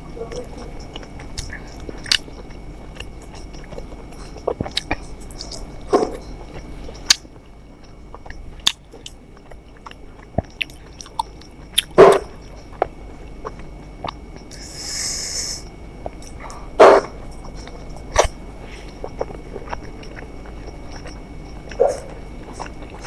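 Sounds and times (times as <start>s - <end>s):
person chewing and biting: 0.3s - 23.0s
wet mouth clicks: 0.9s - 5.7s, 9.9s - 12.2s.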